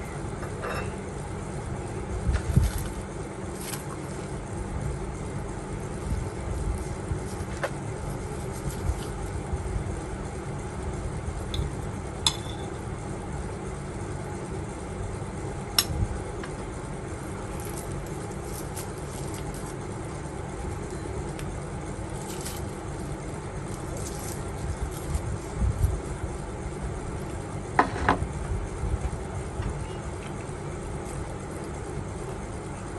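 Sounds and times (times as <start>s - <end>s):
tableware clinking: 0.4s - 1.0s
steady low rumble: 1.0s - 32.9s.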